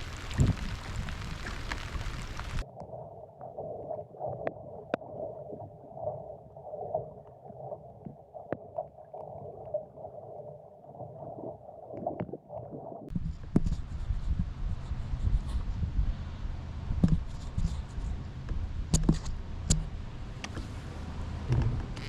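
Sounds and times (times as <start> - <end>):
small clicks: 0.0 - 2.6
muffled underwater noise: 0.0 - 13.0.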